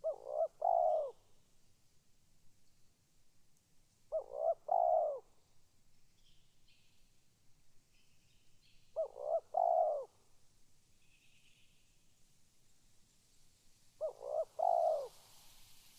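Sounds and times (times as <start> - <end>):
dove cooing: 0.0 - 1.2, 4.1 - 5.2, 9.0 - 10.2, 14.0 - 15.3.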